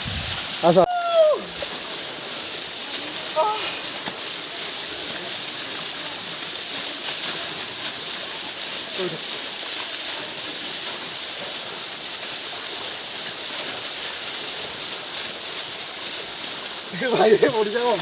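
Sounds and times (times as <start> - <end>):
waterfall pouring onto rocks: 0.0 - 18.0
faint voice calling out: 0.8 - 1.5, 3.3 - 3.8.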